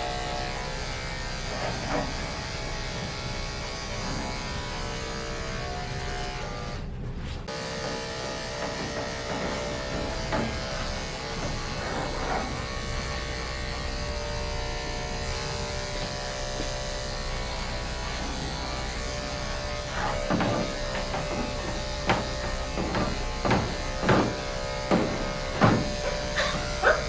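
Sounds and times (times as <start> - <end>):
electric clippers buzzing: 0.0 - 27.0
handling scrapes and knocks: 17.9 - 26.2.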